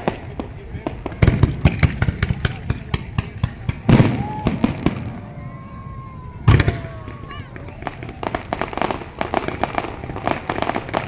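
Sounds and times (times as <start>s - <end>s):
fireworks crackling: 0.0s - 11.0s
heavy firework boom: 0.0s - 11.0s.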